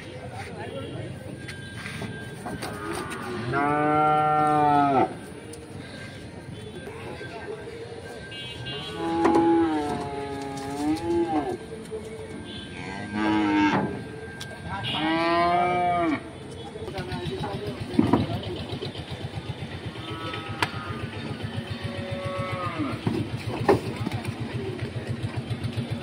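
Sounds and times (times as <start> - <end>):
cattle mooing: 2.6 - 5.2, 8.8 - 11.6, 12.8 - 14.0, 14.9 - 16.3, 21.8 - 23.0.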